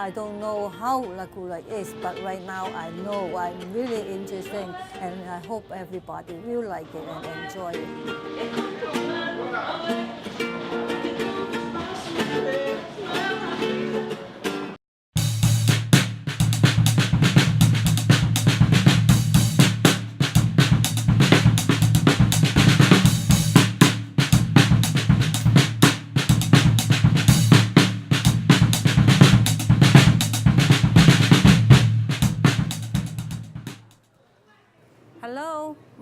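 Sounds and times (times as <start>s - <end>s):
fast drum hits: 15.2s - 34.0s.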